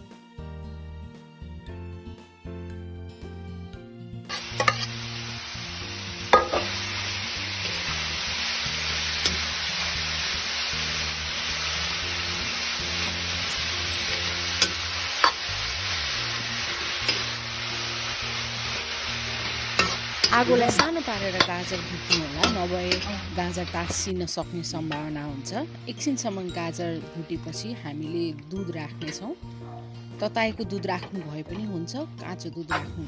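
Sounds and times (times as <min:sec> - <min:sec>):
carrots sizzling in hot fat: 0:04.3 - 0:28.3.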